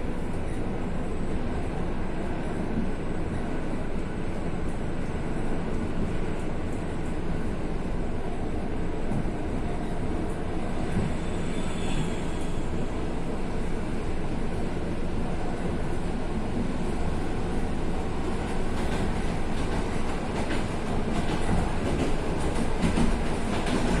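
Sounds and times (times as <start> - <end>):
faint high-pitched squeal: 11.1 - 12.9
train wheels rumbling: 14.7 - 24.0.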